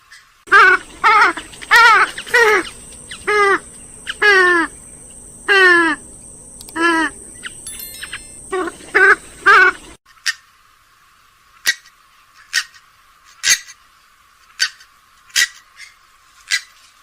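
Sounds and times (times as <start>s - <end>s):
swamphen harsh calls: 0.5s - 7.6s, 8.4s - 10.4s.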